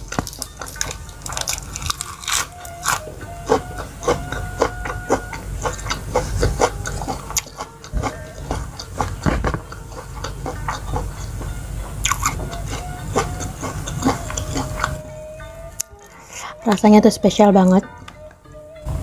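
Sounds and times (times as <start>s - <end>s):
chewing crispy food: 0.0s - 15.0s.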